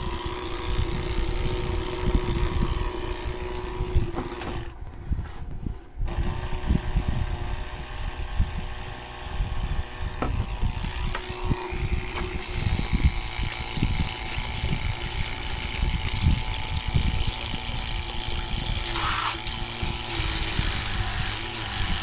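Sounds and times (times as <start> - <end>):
water pump motor hum: 0.0 - 4.9, 6.1 - 22.0
hiss of spraying water: 18.8 - 22.0.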